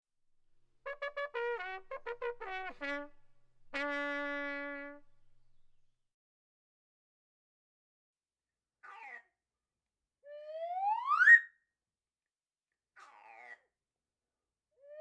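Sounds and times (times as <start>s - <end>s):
trumpet-like brass phrase: 0.9s - 5.8s.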